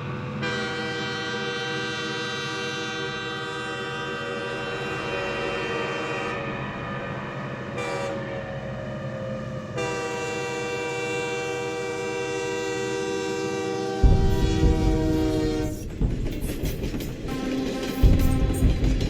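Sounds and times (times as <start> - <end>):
train horn chord: 0.0 - 19.0
loud low rumble: 14.0 - 19.0.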